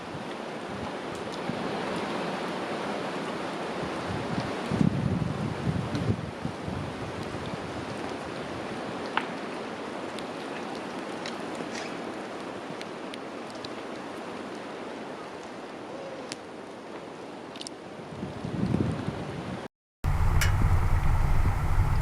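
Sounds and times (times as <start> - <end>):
storm wind rushing through trees: 0.0 - 16.9, 17.9 - 22.0
wind gust on microphone: 3.8 - 8.7, 18.2 - 22.0.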